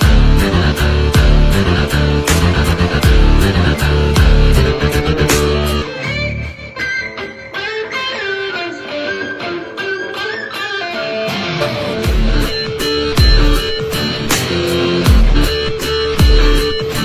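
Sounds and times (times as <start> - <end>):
heavy bass: 0.0 - 6.6, 12.0 - 17.0
electric guitar melody over beat: 0.0 - 17.0.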